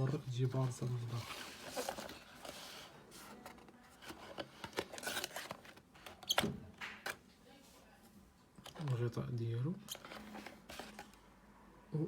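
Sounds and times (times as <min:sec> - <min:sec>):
packaging rustling: 0:00.1 - 0:06.2.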